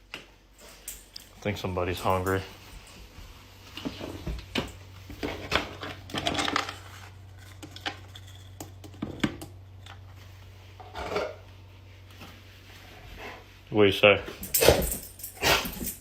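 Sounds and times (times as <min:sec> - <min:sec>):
objects rattling: 0:03.7 - 0:10.1, 0:14.3 - 0:16.0
hard clinks and clatters: 0:14.4 - 0:16.0.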